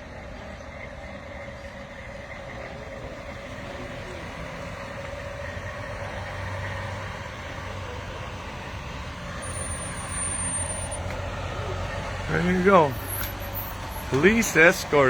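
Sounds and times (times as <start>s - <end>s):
truck engine droning: 0.0s - 15.0s
thin high whistle: 9.4s - 11.0s.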